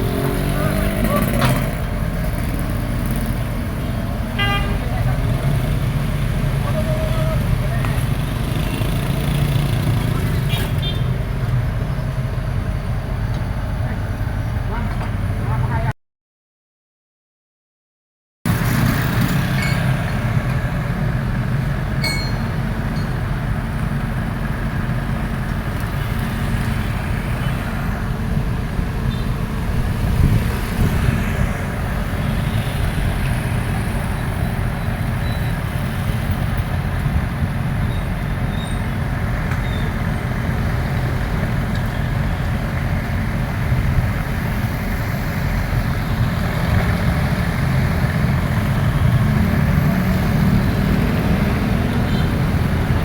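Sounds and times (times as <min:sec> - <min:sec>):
excavator diesel engine running: 0:18.5 - 0:53.0.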